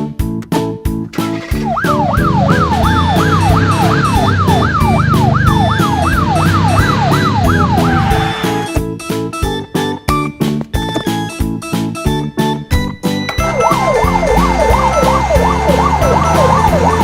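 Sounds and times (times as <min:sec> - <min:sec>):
background music with steady beat: 0:00.0 - 0:17.0
fire truck siren wailing: 0:01.1 - 0:08.8, 0:13.4 - 0:17.0.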